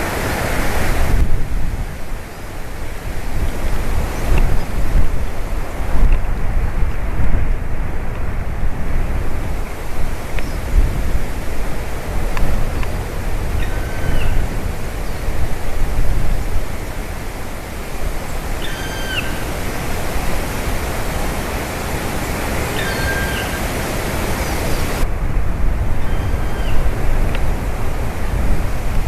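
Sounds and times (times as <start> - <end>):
steady rushing noise: 0.0 - 26.0
woodpecker calling: 13.5 - 15.2, 18.3 - 20.0, 22.6 - 25.0.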